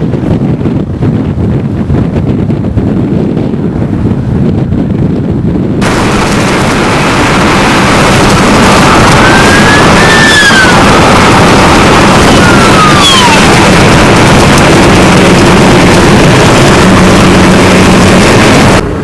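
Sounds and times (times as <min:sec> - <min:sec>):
tornado wind roaring: 0:00.0 - 0:19.0
whining tone: 0:05.8 - 0:19.0.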